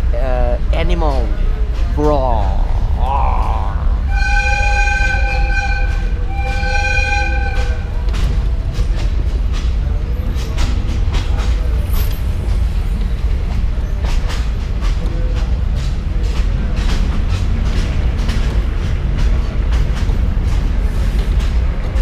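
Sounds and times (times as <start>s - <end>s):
train rumbling: 0.0s - 22.0s
wheels clicking over rails: 4.0s - 22.0s
train horn blasts: 4.1s - 8.0s.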